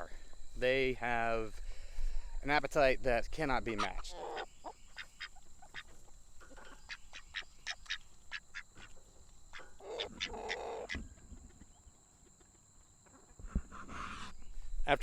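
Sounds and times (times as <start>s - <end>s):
ducks calling: 3.6s - 12.5s, 13.1s - 14.4s.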